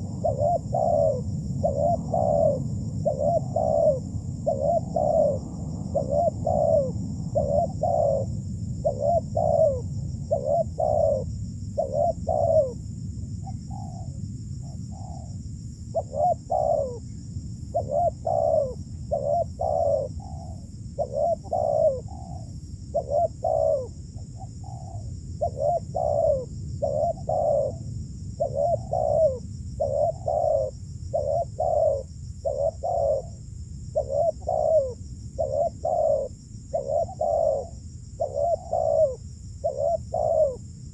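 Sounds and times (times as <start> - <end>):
doves cooing: 0.0 - 12.8, 16.0 - 17.1, 17.7 - 40.6
high-pitched background hiss: 0.0 - 40.9.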